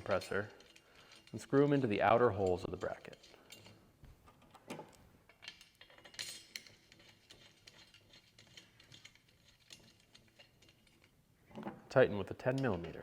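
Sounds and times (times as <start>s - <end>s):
metal bolts clinking: 0.0s - 13.0s.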